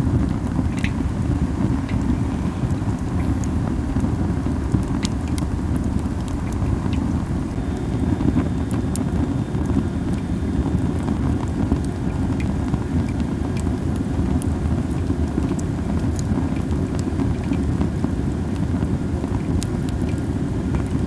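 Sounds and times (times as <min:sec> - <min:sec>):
low rumble: 0:00.0 - 0:14.6
campfire crackling and popping: 0:00.0 - 0:21.0.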